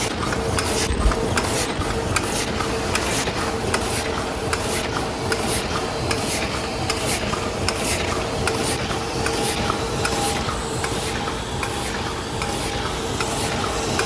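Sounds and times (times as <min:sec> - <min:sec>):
machine humming: 0:00.0 - 0:04.4.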